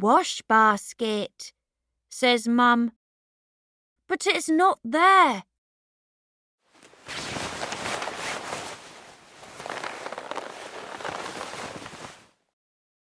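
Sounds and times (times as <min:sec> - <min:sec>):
rustling crackling noise: 0:06.7 - 0:12.4.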